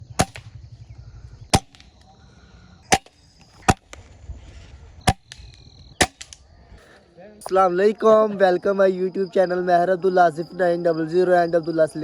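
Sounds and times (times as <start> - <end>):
air rifle shots: 0.0 - 0.7, 1.5 - 2.1, 2.8 - 4.1, 5.1 - 6.5.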